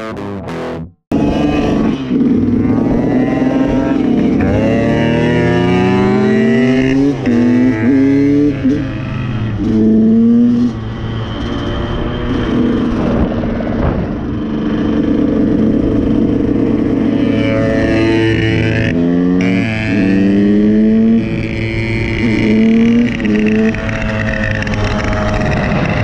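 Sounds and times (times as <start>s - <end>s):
dirt bike engine accelerating: 0.0s - 26.0s
wind on microphone: 9.4s - 17.2s.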